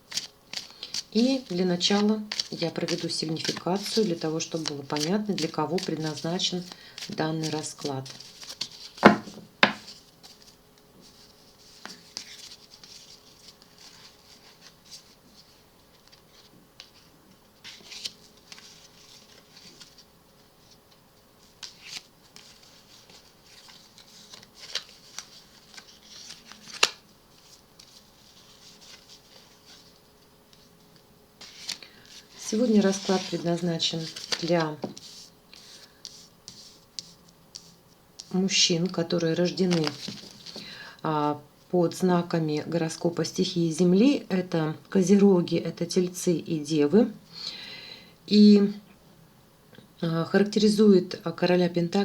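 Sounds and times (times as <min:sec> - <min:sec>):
cards sliding and rustling: 0:00.1 - 0:20.8, 0:21.4 - 0:30.7, 0:31.4 - 0:37.8, 0:39.5 - 0:40.7
card snaps and taps: 0:09.0 - 0:09.9.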